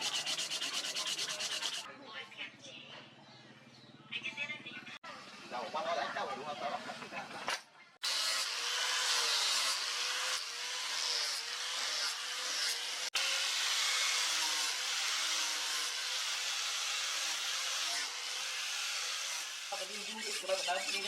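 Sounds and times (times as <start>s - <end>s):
power tool grinding: 0.0s - 1.9s, 8.0s - 21.0s.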